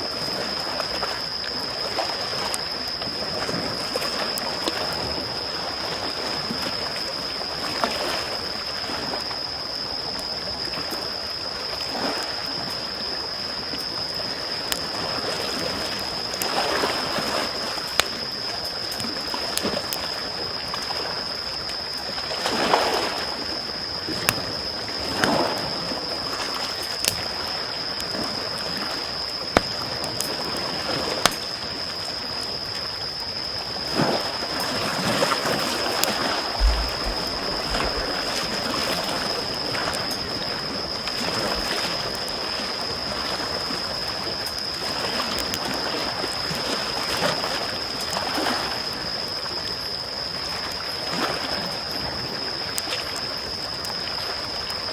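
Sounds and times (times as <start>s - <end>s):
small waves on shore: 0.0s - 54.9s
campfire crackling and popping: 17.5s - 20.2s, 26.7s - 28.7s, 29.4s - 30.5s, 31.2s - 31.5s, 36.0s - 40.2s.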